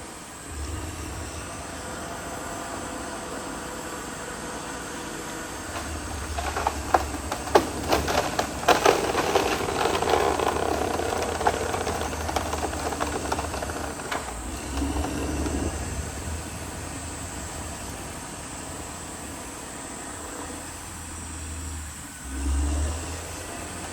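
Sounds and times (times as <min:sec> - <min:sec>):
bulldozer diesel engine: 0:00.0 - 0:23.9
tracks and blade clanking: 0:05.6 - 0:15.8.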